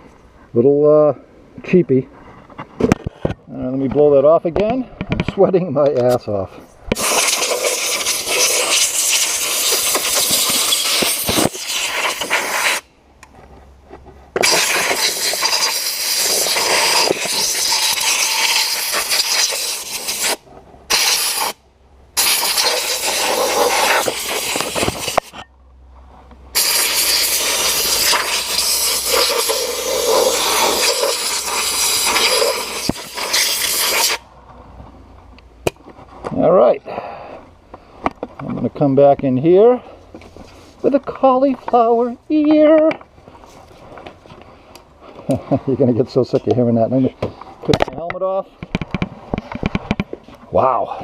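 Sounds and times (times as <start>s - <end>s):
compressed air hissing from air gun: 6.9s - 12.9s, 14.4s - 21.6s, 22.2s - 25.4s, 26.6s - 34.3s.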